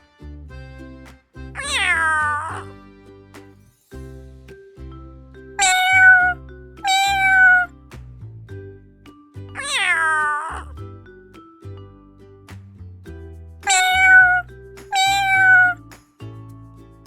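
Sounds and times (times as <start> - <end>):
background music: 0.0 - 17.0
cat meowing: 1.6 - 2.6, 6.9 - 7.7, 13.7 - 14.4.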